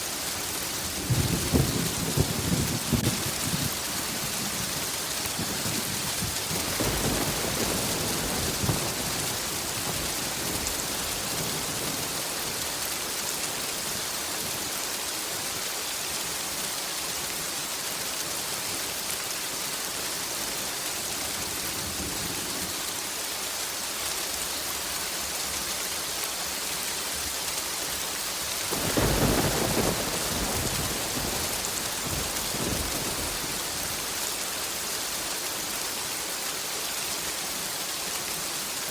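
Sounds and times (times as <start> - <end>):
heavy rain: 0.0 - 38.9
thunder rumbling: 0.9 - 12.6, 28.7 - 34.4.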